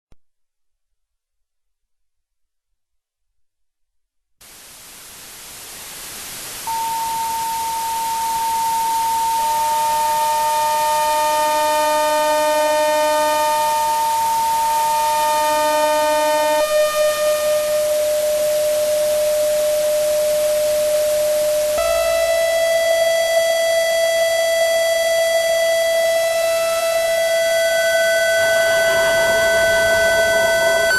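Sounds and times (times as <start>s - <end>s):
rushing hiss: 4.4s - 10.1s
steady whistling tones: 6.7s - 22.0s, 25.2s - 30.9s.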